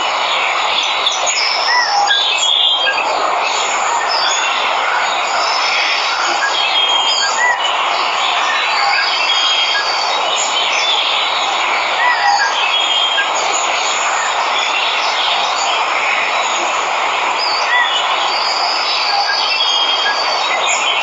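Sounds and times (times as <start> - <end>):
birds chirping and whistling: 5.4 - 7.8.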